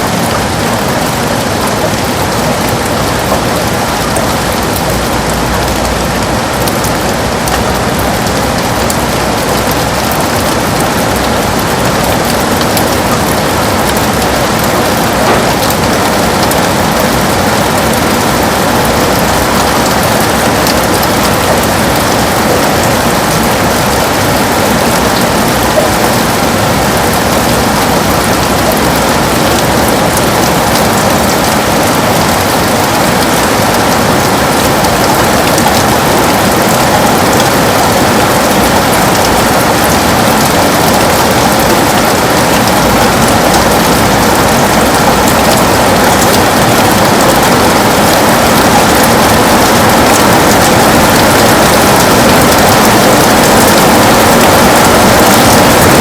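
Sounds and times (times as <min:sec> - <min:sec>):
heavy rain on a window: 0:00.0 - 0:56.0.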